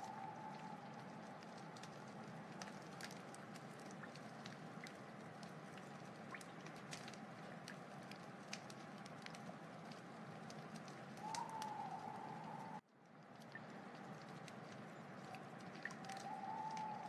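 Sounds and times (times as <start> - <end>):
faint steady tone: 0.0 - 4.1
wood fire crackling: 0.0 - 17.0.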